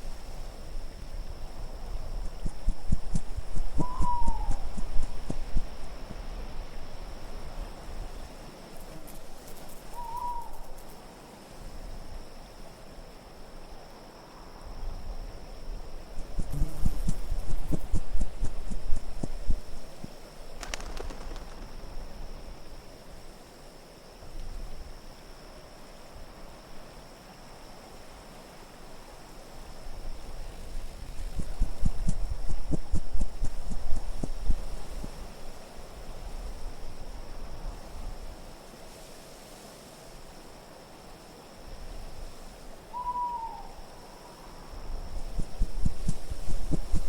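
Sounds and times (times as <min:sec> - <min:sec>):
wind noise: 0:00.0 - 0:10.8, 0:14.6 - 0:22.9, 0:29.6 - 0:39.6, 0:44.6 - 0:47.0
faint high whistling tone: 0:03.1 - 0:05.7, 0:09.9 - 0:10.8, 0:42.9 - 0:44.8
wind rushing: 0:45.1 - 0:47.0.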